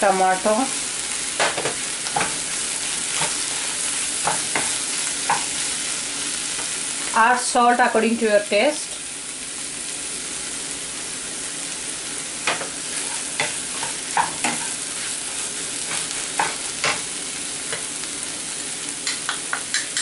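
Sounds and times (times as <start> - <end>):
vegetables sizzling in a pan: 0.0 - 20.0
wooden spoon scraping and tapping pan: 4.2 - 5.6, 12.4 - 14.8, 15.8 - 17.0, 19.0 - 20.0.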